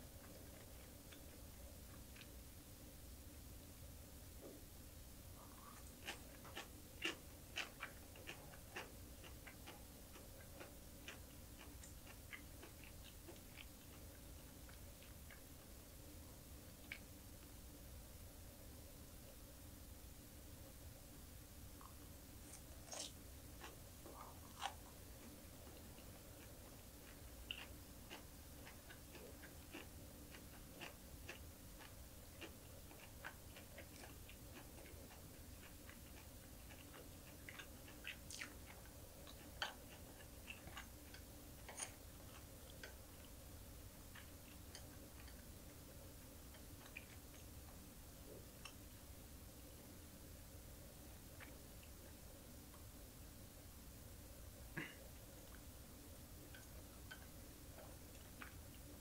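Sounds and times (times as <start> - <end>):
crunchy chewing: 0.0 - 2.4, 5.4 - 15.8, 21.8 - 48.9, 56.4 - 59.0.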